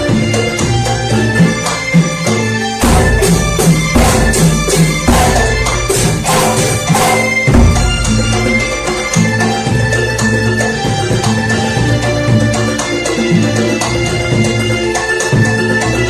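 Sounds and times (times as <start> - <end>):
frame drums and percussion: 0.0 - 16.0
sustained melodic tones: 2.7 - 11.0.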